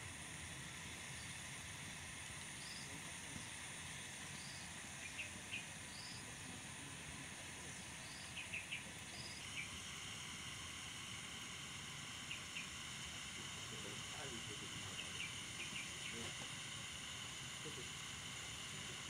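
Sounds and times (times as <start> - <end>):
insects droning: 0.0 - 19.0
bird chirping: 8.0 - 9.7.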